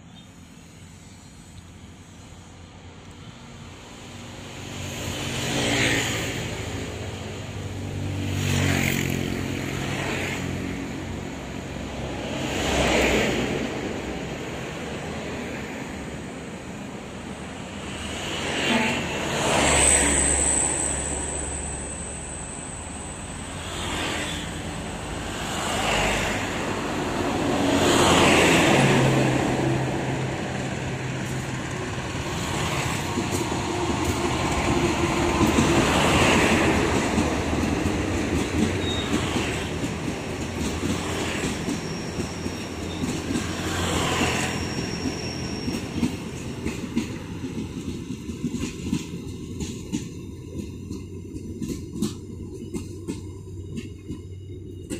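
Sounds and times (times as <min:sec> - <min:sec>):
train wheels clattering: 0:31.2 - 0:54.9.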